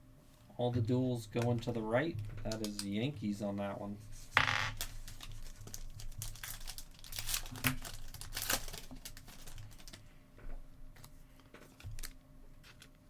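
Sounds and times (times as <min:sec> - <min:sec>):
wrapper crinkling: 0:02.3 - 0:03.0, 0:04.3 - 0:10.1, 0:11.0 - 0:13.0.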